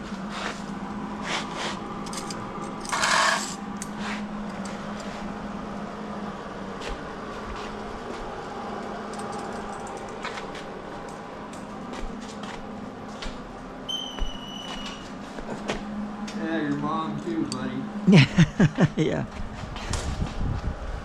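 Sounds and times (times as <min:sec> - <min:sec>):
steady low hum: 0:00.0 - 0:21.0
metal clicks and scrapes: 0:02.1 - 0:05.2.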